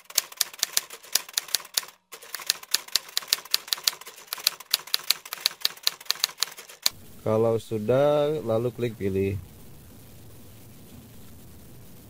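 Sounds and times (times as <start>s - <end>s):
phone keyboard typing clicks: 0.0s - 6.9s.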